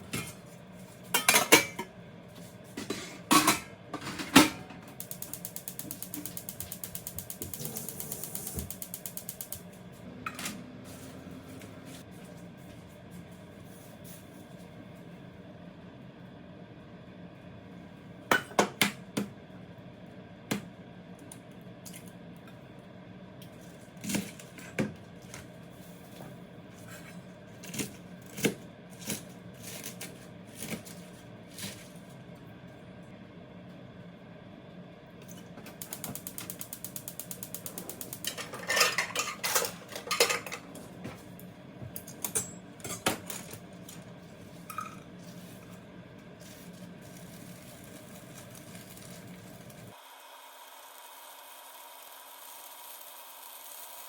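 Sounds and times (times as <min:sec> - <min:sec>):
utensils and dishes clinking: 0:01.1 - 0:01.9, 0:02.8 - 0:04.8, 0:37.7 - 0:40.9, 0:42.0 - 0:44.0, 0:44.6 - 0:45.1
quick mechanical ticking: 0:05.0 - 0:09.7.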